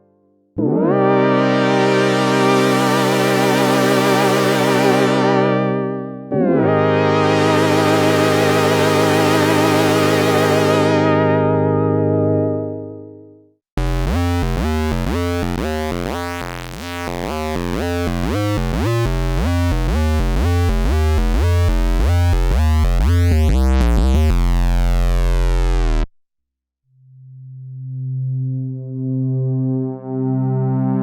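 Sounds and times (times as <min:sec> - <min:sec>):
analog synth legato run: 0:00.6 - 0:12.9, 0:13.8 - 0:26.1
synth bass line: 0:00.6 - 0:13.1, 0:13.8 - 0:26.1.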